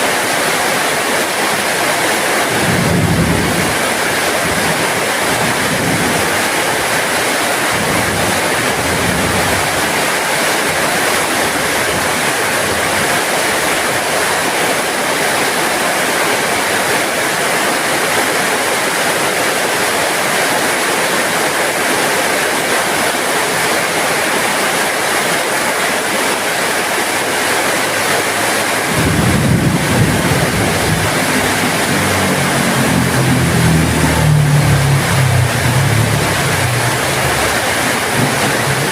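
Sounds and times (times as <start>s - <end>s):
heavy rain falling: 0.0s - 38.9s
low rumble: 28.9s - 38.9s.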